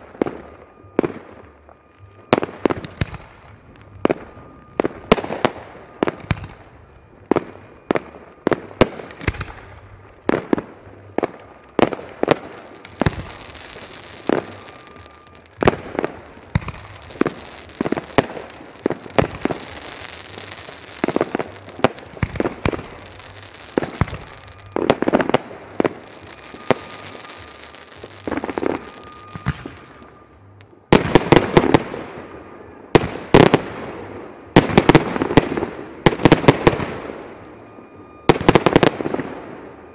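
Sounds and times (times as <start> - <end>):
fireworks bangs: 0.0 - 39.9
fireworks hissing crackle: 0.0 - 39.9.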